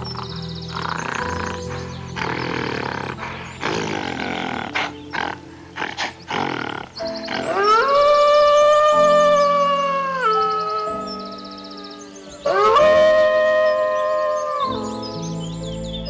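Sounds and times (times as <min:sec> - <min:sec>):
animal roaring grunts: 0:00.0 - 0:07.9
long pitched animal call: 0:00.0 - 0:15.2
background music: 0:00.0 - 0:16.0.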